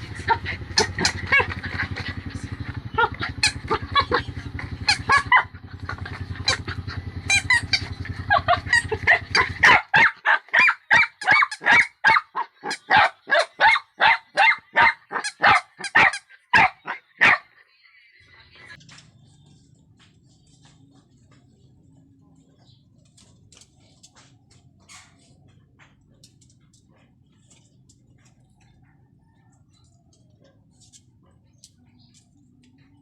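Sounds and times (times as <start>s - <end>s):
puppy barking: 0.0s - 17.6s.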